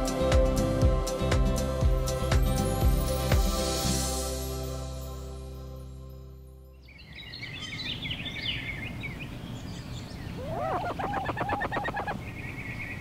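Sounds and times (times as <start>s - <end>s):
birds singing: 6.8s - 13.0s.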